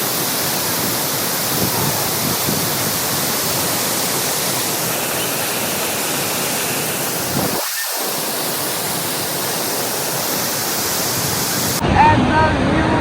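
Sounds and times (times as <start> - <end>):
waterfall rushing: 0.0 - 11.8.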